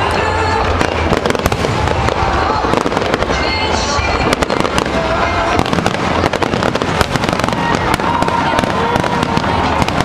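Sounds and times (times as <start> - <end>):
fireworks bangs and crackling: 0.0 - 10.0.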